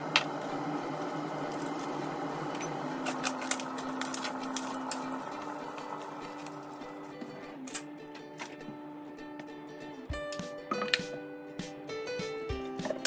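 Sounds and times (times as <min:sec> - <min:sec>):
steady hum with held tone: 0:00.0 - 0:07.5.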